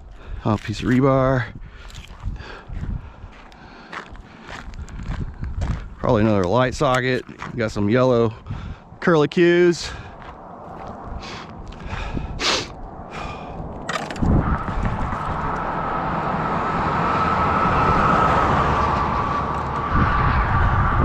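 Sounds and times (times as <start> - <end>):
car passing: 9.7 - 21.0.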